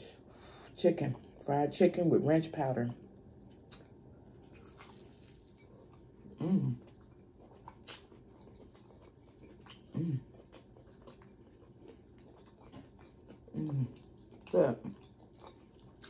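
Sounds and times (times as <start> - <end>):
wet chewing and smacking: 3.2 - 16.0
person humming mmm: 6.3 - 6.9, 9.9 - 10.3, 13.5 - 14.0.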